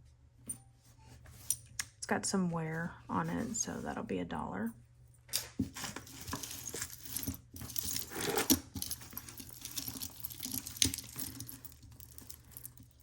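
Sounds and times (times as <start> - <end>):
jewelry pieces clinking and rustling: 5.7 - 13.0.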